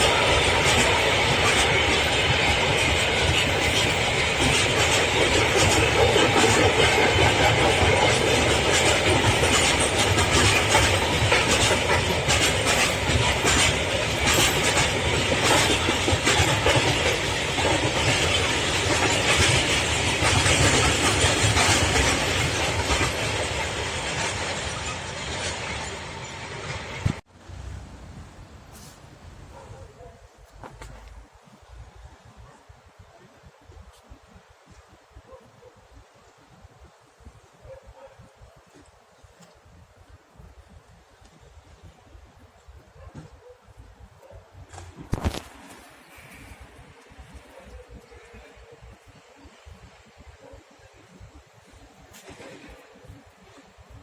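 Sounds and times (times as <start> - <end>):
wheels clicking over rail joints: 0.0 - 27.2, 42.5 - 54.0
freight wagons rumbling: 0.0 - 29.6.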